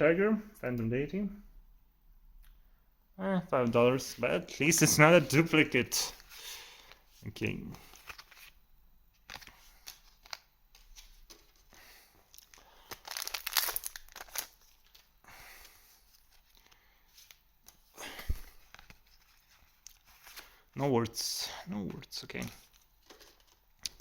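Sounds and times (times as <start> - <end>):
cards rustling: 7.6 - 20.6, 21.7 - 24.0
wrapper tearing and crinkling: 12.3 - 15.1.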